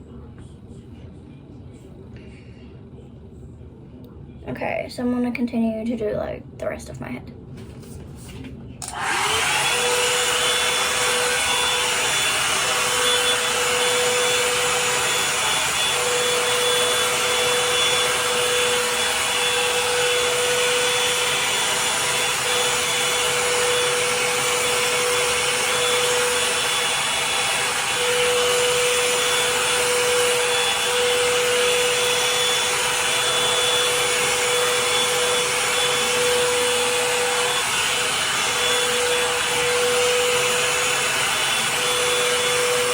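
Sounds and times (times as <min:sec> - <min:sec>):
hot-air dryer brush whining: 0:08.8 - 0:42.9.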